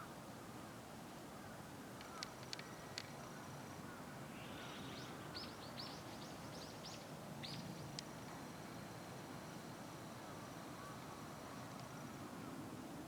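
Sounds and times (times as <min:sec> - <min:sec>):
low outdoor background hum: 0:00.0 - 0:13.0.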